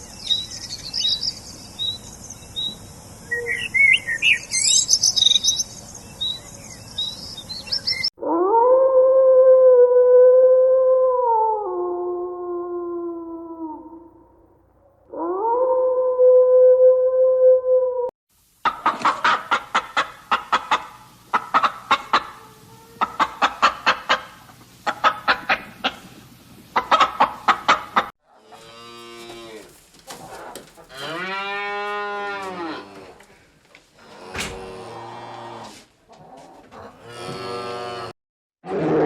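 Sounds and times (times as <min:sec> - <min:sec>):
animal howl: 0:08.2 - 0:14.2
chickens clucking: 0:18.6 - 0:28.7, 0:29.6 - 0:31.2, 0:34.0 - 0:37.4
cow mooing: 0:28.4 - 0:29.8, 0:30.9 - 0:33.2, 0:34.0 - 0:35.8, 0:37.0 - 0:38.1.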